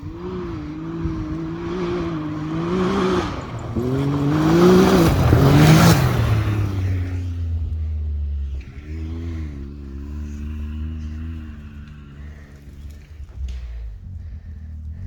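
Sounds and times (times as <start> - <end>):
utility vehicle engine running: 0.0 - 15.0.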